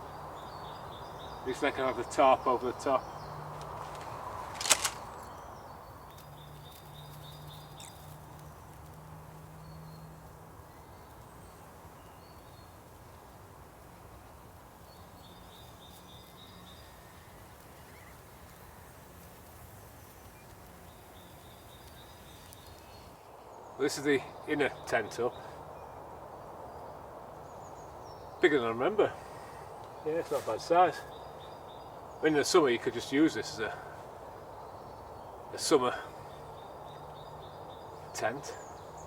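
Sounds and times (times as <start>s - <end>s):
birds calling faintly: 0.0s - 39.0s
sharp click: 3.6s - 5.3s.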